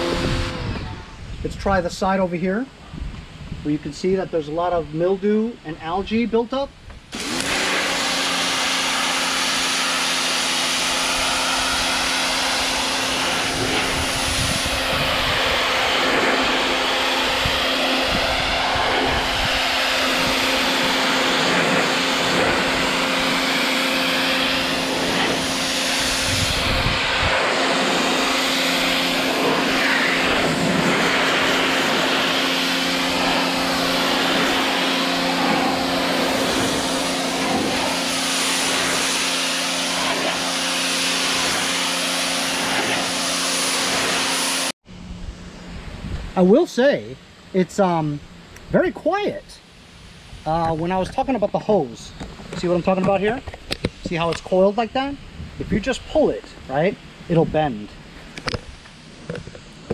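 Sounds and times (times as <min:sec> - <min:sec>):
electric pump motor humming: 0:00.0 - 0:01.3, 0:07.1 - 0:45.8
water jet spraying siding: 0:03.3 - 0:44.8, 0:45.6 - 0:59.9.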